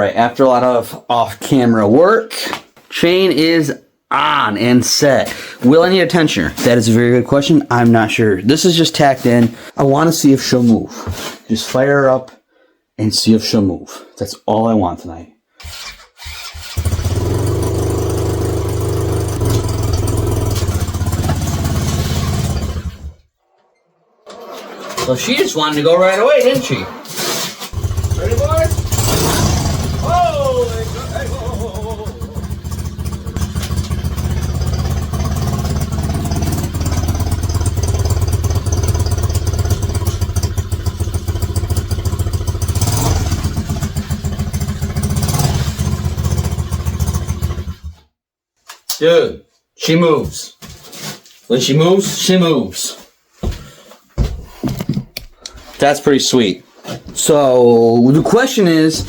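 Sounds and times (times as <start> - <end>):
mini bike engine idling: 16.7 - 23.1, 27.8 - 47.8.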